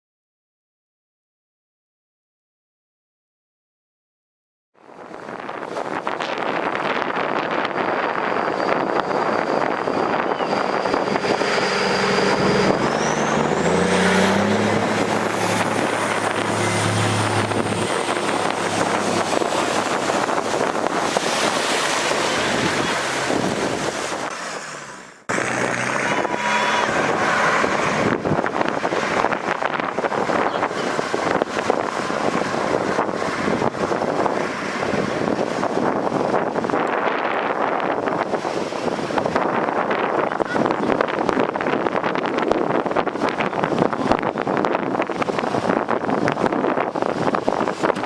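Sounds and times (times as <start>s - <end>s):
wind noise on microphone: 4.8s - 48.0s.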